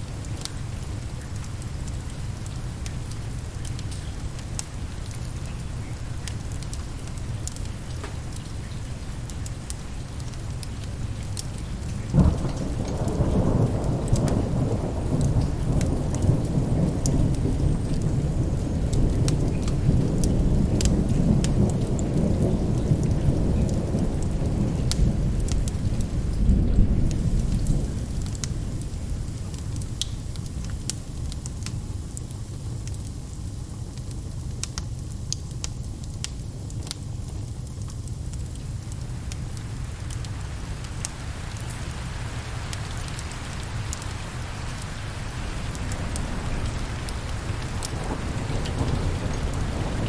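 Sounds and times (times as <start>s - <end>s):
steady rain: 0.0s - 50.0s
wood fire crackling: 0.0s - 50.0s
thunderclap and rumbling thunder: 11.6s - 30.7s, 43.0s - 50.0s.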